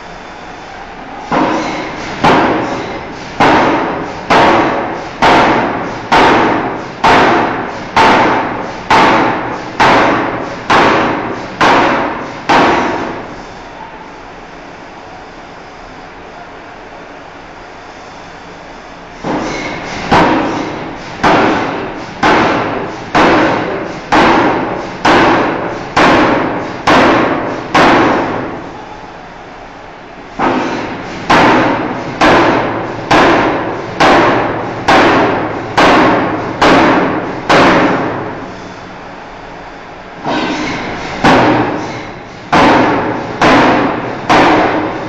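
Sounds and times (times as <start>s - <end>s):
hammer striking steel bar: 1.3s - 13.2s, 19.3s - 28.5s, 30.4s - 38.2s, 40.2s - 45.0s.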